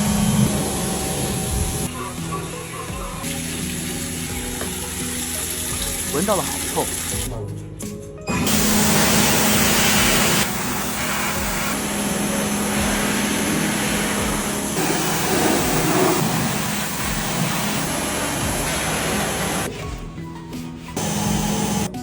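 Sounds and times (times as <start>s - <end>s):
low motor hum: 0.0s - 2.0s, 8.5s - 19.7s, 21.0s - 22.0s
water sprayer hissing: 0.0s - 7.3s, 8.5s - 19.8s, 21.0s - 22.0s.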